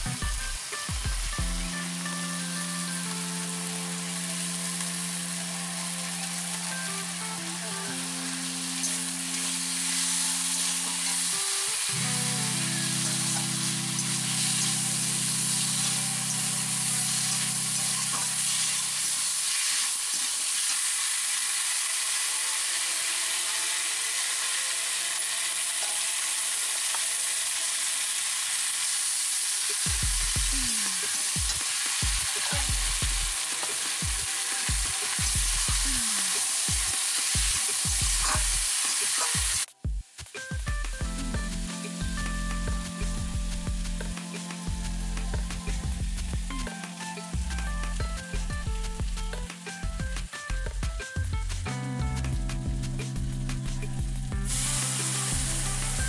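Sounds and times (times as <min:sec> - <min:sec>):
potato wedges sizzling in oil: 0:00.0 - 0:51.7, 0:52.6 - 0:56.0.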